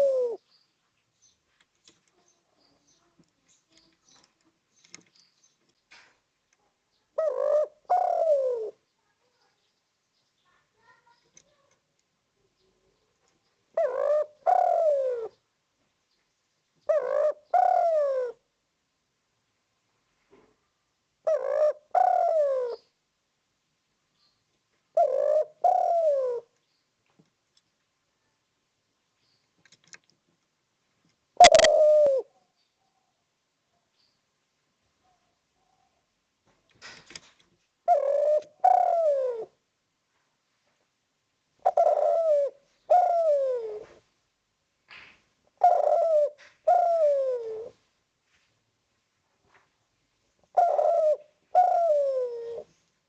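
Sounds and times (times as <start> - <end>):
dove cooing: 0.0 - 0.4, 7.1 - 8.8, 13.7 - 15.4, 16.9 - 18.4, 21.2 - 22.9, 24.9 - 26.6, 31.4 - 33.1, 37.8 - 39.6, 41.6 - 44.0, 45.6 - 47.8, 50.4 - 52.8.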